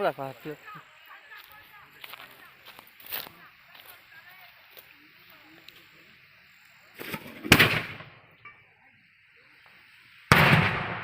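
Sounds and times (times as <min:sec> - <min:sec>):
loud sharp bangs: 0:07.1 - 0:08.2, 0:10.3 - 0:11.0.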